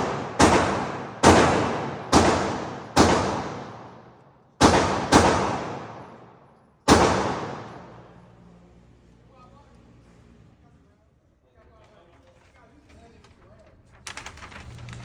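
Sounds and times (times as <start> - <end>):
handgun shots echoing: 0.0 - 8.1.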